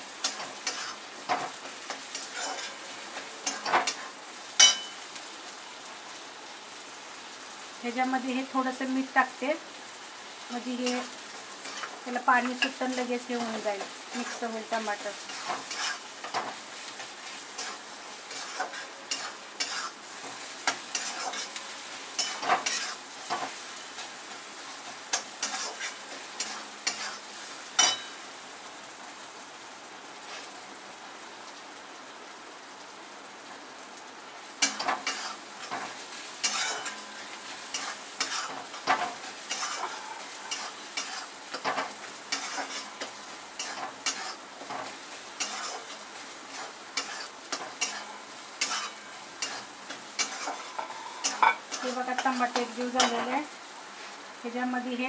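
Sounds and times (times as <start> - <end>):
masala sizzling in pan: 0.0 - 55.0
metal spatula scraping pan: 0.2 - 1.5, 2.1 - 2.8, 15.2 - 16.5, 17.2 - 24.1, 25.1 - 27.2, 34.6 - 53.3.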